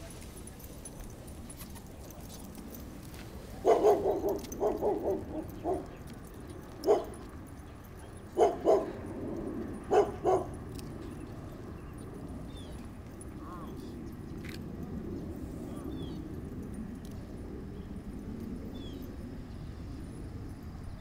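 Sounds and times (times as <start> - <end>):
dog barking: 3.6 - 6.0, 6.8 - 7.3, 8.3 - 9.0, 9.8 - 10.6.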